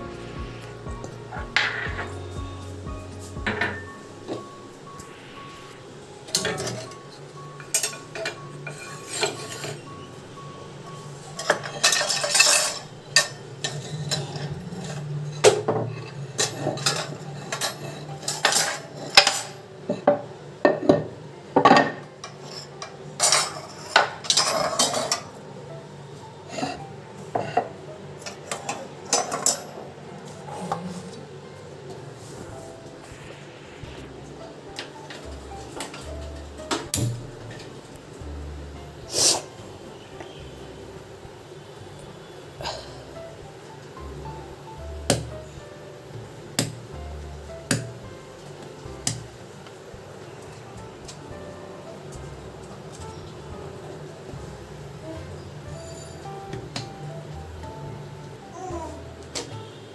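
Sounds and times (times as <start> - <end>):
dishes and cutlery clinking: 1.0 - 2.2, 3.2 - 4.5, 6.3 - 9.9, 11.4 - 25.4, 26.6 - 30.8, 55.7 - 56.9.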